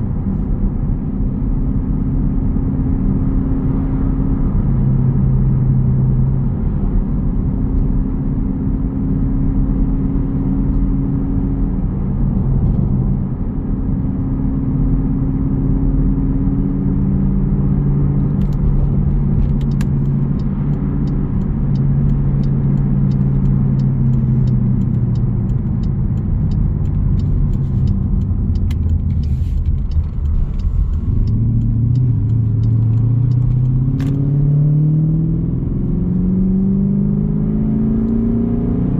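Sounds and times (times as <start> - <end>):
engine exhaust rumbling: 18.3 - 34.6.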